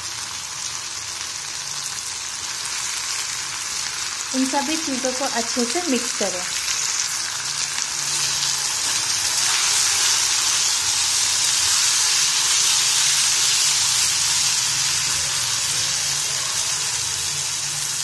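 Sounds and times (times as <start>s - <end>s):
meat frying in oil: 0.0s - 18.0s.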